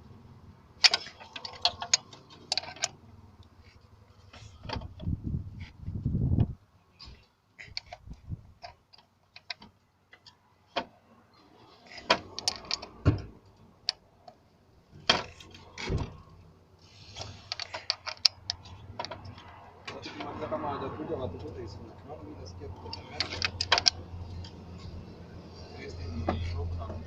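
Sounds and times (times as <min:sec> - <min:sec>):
hand tools clicking and knocking: 0:00.8 - 0:03.0, 0:07.1 - 0:10.9, 0:11.6 - 0:13.1, 0:17.1 - 0:20.4, 0:22.8 - 0:24.9.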